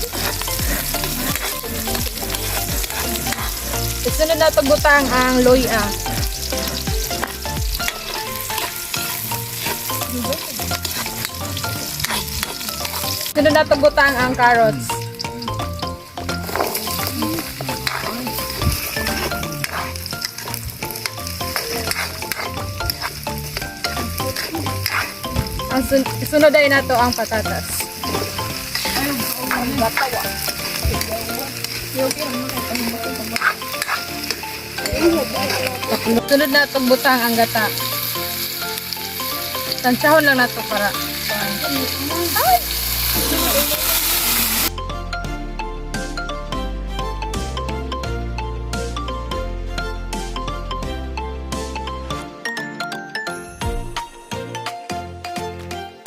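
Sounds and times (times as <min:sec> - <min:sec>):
food sizzling in hot oil: 0:00.0 - 0:44.8.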